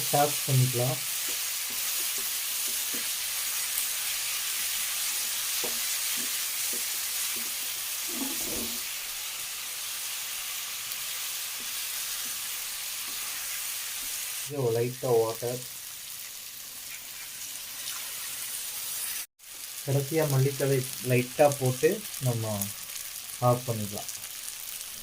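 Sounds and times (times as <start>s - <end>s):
fish sizzling in a pan: 0.0s - 25.0s
spatula knocking: 5.5s - 7.5s.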